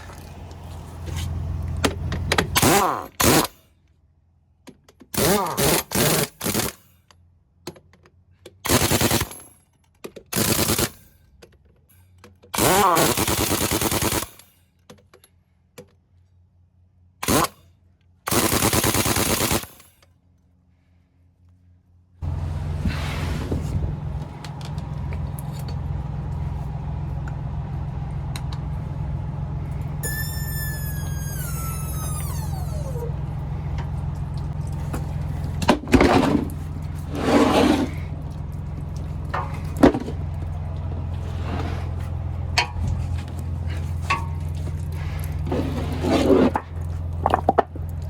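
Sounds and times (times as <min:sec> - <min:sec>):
pneumatic impact wrench bursts: 0:02.5 - 0:03.6, 0:05.1 - 0:06.9, 0:08.7 - 0:09.4, 0:10.4 - 0:11.0, 0:12.6 - 0:14.4, 0:17.2 - 0:17.6, 0:18.3 - 0:19.9.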